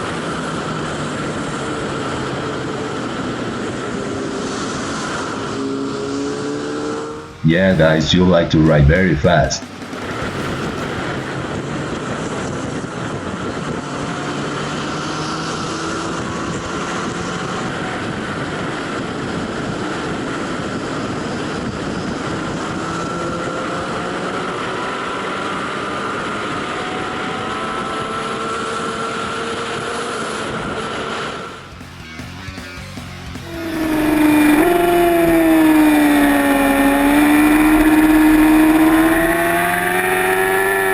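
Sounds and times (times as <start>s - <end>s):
motorcycle engine at high speed: 0.0s - 31.6s, 33.3s - 40.9s
wind noise: 9.6s - 14.7s, 33.5s - 40.9s.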